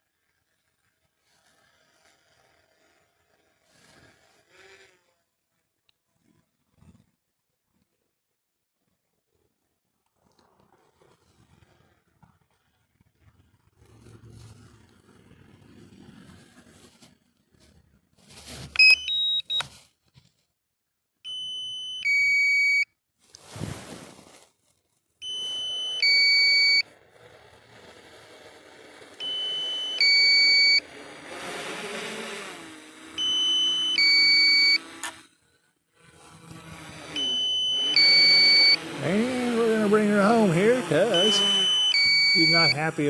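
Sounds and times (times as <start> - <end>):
two-tone electronic beep: 18.8 - 19.6, 25.2 - 26.8, 29.2 - 30.8, 33.2 - 34.8, 37.2 - 38.8, 41.1 - 42.8.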